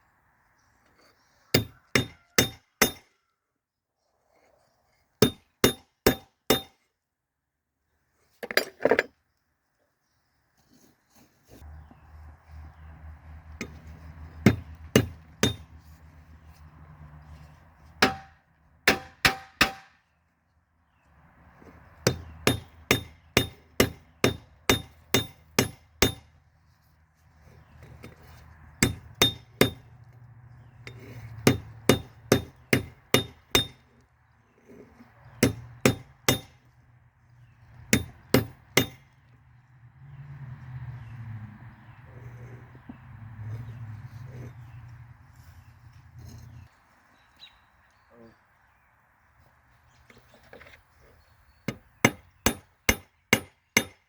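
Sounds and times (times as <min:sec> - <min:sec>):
hammer striking metal on anvil: 0:01.6 - 0:03.1, 0:05.2 - 0:06.8, 0:14.4 - 0:15.7, 0:18.0 - 0:20.0, 0:22.1 - 0:26.3, 0:28.8 - 0:29.9, 0:31.4 - 0:33.8, 0:35.4 - 0:36.6, 0:37.9 - 0:39.0, 0:52.1 - 0:54.0.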